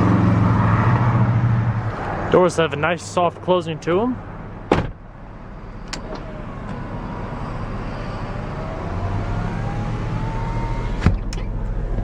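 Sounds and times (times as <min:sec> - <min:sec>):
car engine idling hum: 0:01.7 - 0:08.9.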